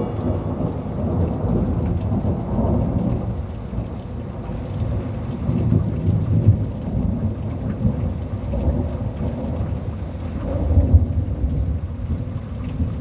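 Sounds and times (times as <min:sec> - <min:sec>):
thunder rumbling: 0:00.0 - 0:09.6
steady rain: 0:00.0 - 0:13.0.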